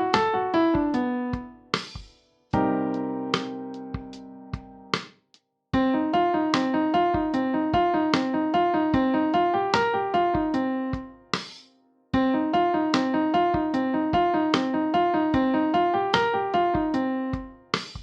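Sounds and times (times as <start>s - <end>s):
keyboard playing quick chords: 0.0s - 1.6s, 2.6s - 4.9s, 12.2s - 17.5s.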